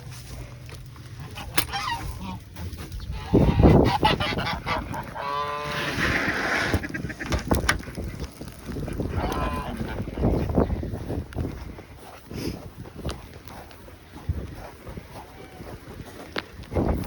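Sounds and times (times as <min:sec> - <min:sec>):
goose honking: 0:01.2 - 0:08.0, 0:08.8 - 0:10.4.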